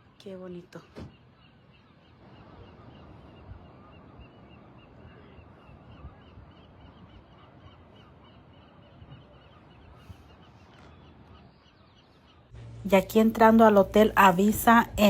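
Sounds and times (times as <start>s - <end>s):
flock of birds calling: 0.8s - 12.5s.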